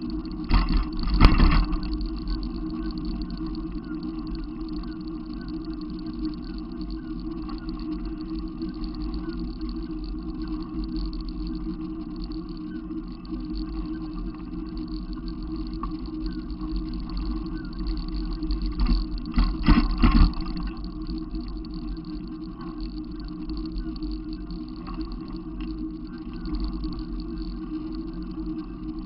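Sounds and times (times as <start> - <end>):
low engine hum: 0.0 - 5.2, 13.0 - 29.0.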